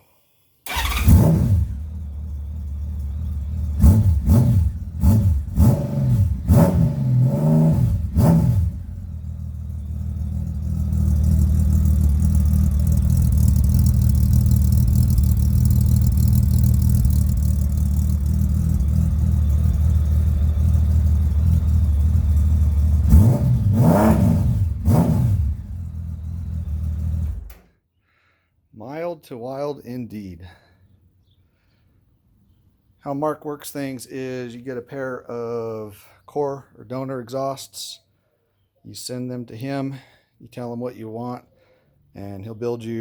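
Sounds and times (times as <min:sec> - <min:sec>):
motorcycle engine revving and idling: 0:00.7 - 0:27.6.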